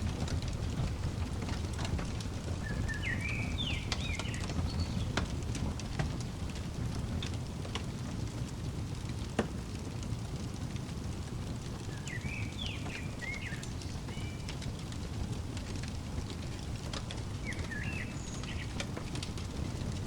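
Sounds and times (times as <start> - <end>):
wood fire crackling: 0.0 - 20.0
bird chirping: 2.5 - 5.2, 11.9 - 14.6, 17.3 - 19.1.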